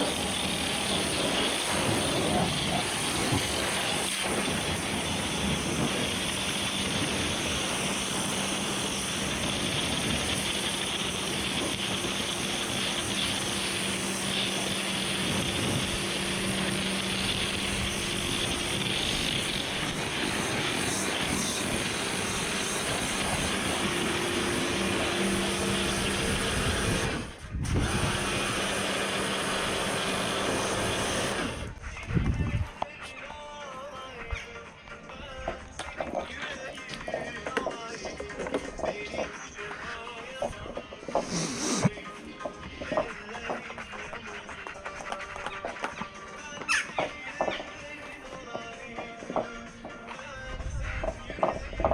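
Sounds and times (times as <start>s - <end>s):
pressure washer water hiss: 0.0s - 27.2s, 27.8s - 31.7s, 41.1s - 41.9s
pump motor hum: 0.0s - 31.8s.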